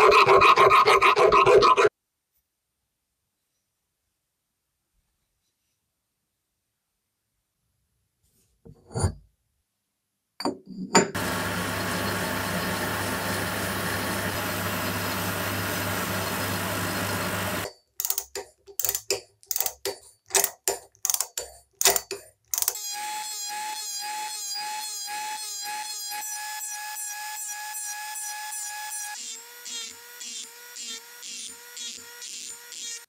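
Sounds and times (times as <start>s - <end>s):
machine humming: 11.2s - 17.7s
sharp clicks and knocks: 17.6s - 22.8s.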